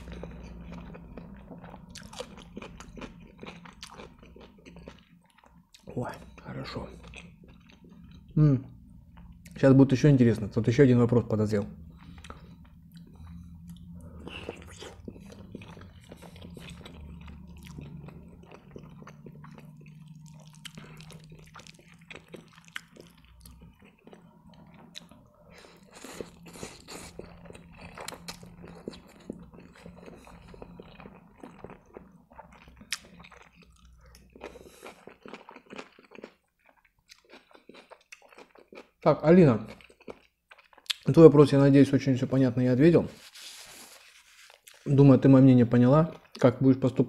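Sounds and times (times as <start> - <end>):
wet chewing: 11.9 - 39.0.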